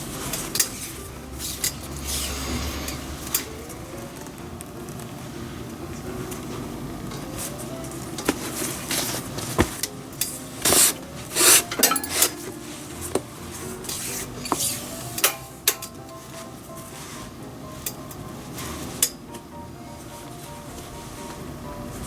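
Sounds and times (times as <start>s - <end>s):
metal tools clinking: 10.2s - 12.5s.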